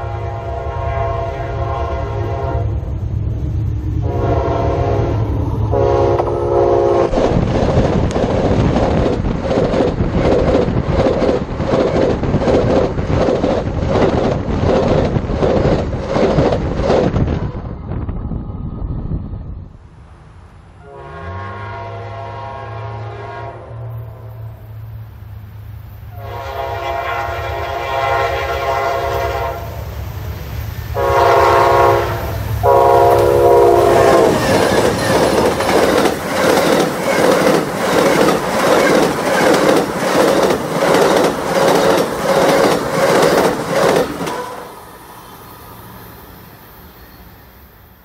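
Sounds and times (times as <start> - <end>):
train horn blasts: 0.0 - 2.9, 4.0 - 7.1, 20.8 - 24.8, 26.1 - 29.8, 30.9 - 34.8
train wheels clattering over rail joints: 7.1 - 17.5, 34.1 - 44.6.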